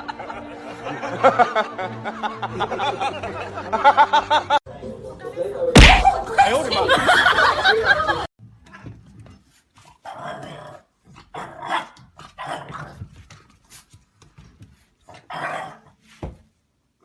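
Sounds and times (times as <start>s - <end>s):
dog growling and barking: 10.0s - 13.1s, 15.1s - 16.0s.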